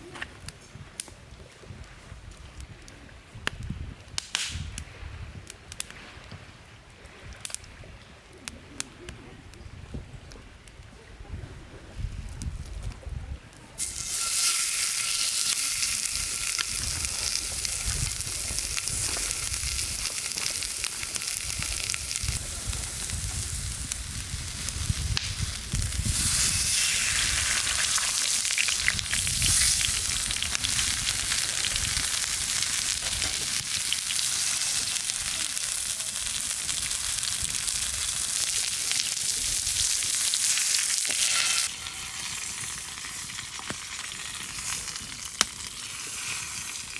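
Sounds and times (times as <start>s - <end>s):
food frying sizzle: 13.8s - 46.9s.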